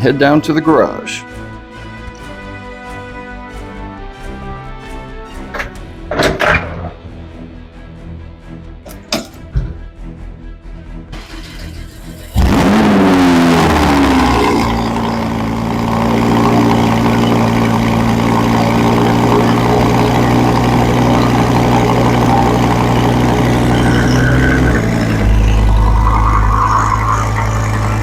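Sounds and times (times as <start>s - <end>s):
car engine starting and revving: 11.0s - 28.0s.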